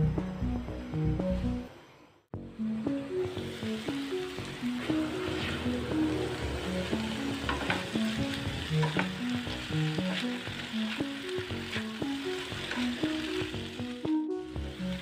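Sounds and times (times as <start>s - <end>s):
background music: 0.0s - 15.0s
mince sizzling on a griddle: 3.3s - 15.0s
spatula scraping and tapping pan: 7.4s - 9.3s, 9.9s - 11.1s, 11.7s - 13.1s.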